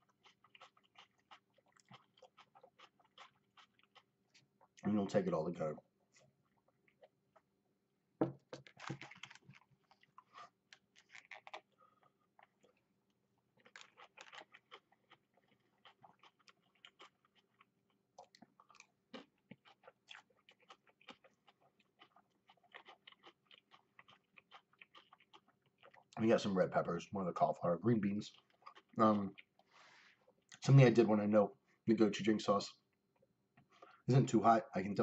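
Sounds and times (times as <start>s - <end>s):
person chewing food: 0.0s - 4.8s, 6.0s - 7.6s, 8.2s - 26.2s, 28.0s - 30.6s, 32.8s - 34.0s
knock: 8.2s - 8.6s.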